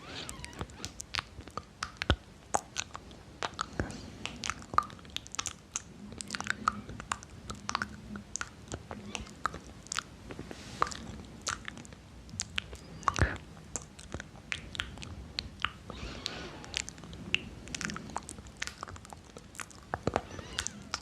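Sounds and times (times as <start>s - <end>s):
wet mouth clicks and smacks: 0.9s - 8.9s, 10.8s - 15.8s.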